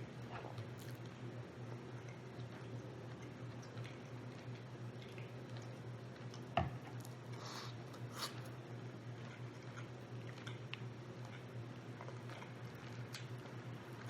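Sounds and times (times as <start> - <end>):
wet eating sounds: 2.0 - 14.0.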